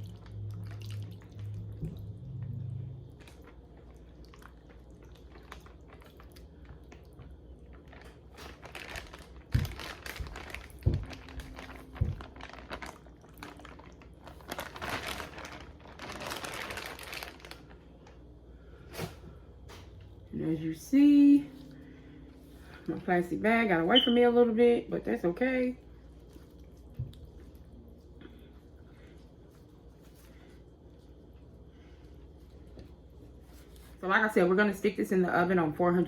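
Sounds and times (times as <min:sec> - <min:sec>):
plastic crinkling and rustling: 0:03.2 - 0:20.0.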